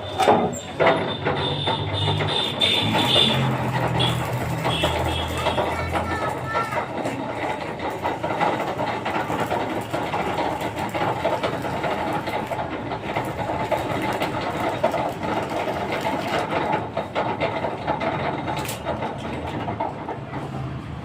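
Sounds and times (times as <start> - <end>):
machine clattering: 0.0 - 21.0.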